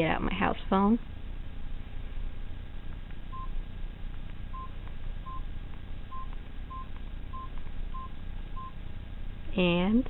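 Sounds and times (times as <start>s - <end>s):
phone keypad beeps: 4.5s - 5.4s, 6.1s - 8.8s.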